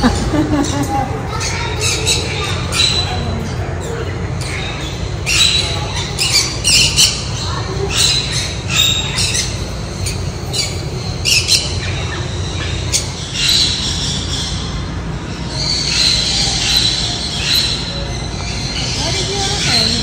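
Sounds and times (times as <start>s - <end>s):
birds squawking: 0.0s - 20.0s.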